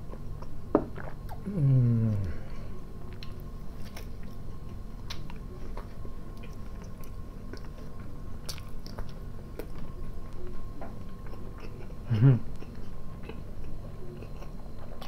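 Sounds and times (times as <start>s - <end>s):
person chewing: 3.1s - 15.0s.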